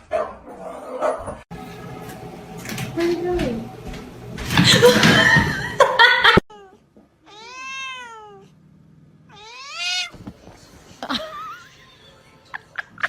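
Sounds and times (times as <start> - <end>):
cat meowing: 6.5 - 8.5, 9.3 - 10.2.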